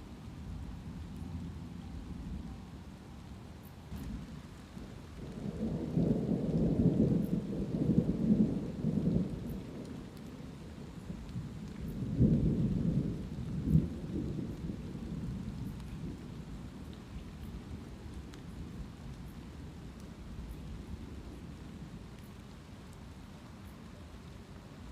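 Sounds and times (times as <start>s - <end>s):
light rain falling: 0.0s - 24.9s
rolling thunder: 3.8s - 19.8s.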